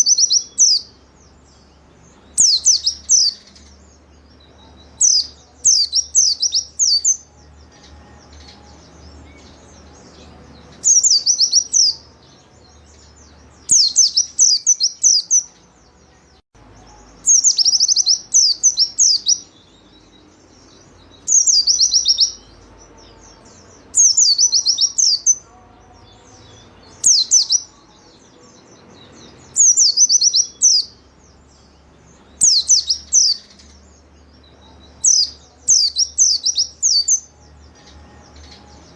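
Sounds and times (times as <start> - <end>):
bird twittering: 0.0 - 1.0, 2.1 - 3.8, 4.4 - 9.7, 10.7 - 12.1, 13.0 - 15.6, 16.9 - 19.8, 20.6 - 22.6, 23.2 - 25.4, 27.0 - 27.8, 32.3 - 33.8, 35.0 - 37.3.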